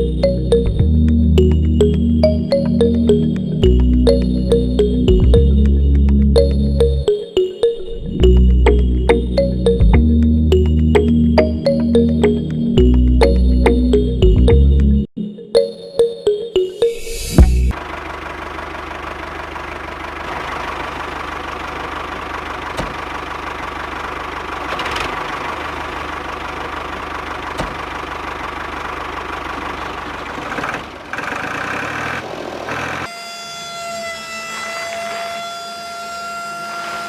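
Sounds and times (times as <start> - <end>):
tractor engine idling: 17.4 - 33.0
two-tone siren wail: 32.7 - 37.0.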